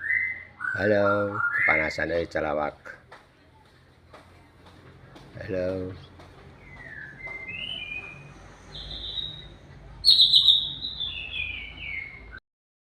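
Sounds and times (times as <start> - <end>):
bird whistling clear notes: 6.6 - 12.4.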